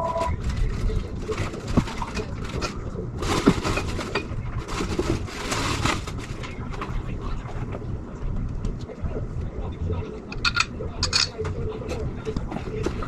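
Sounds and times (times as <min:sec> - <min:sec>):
tools clicking and scraping: 0:10.4 - 0:11.4.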